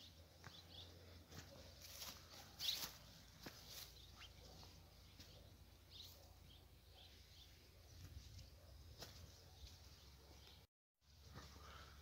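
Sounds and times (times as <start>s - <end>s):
faint high bird chirps: 3.7s - 8.8s.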